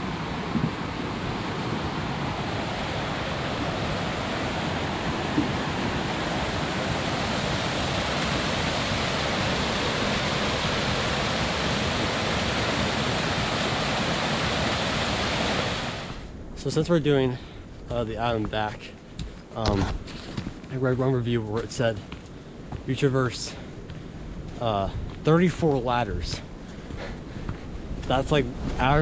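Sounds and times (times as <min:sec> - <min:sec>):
strong wind rushing: 0:00.0 - 0:16.7, 0:27.7 - 0:29.0.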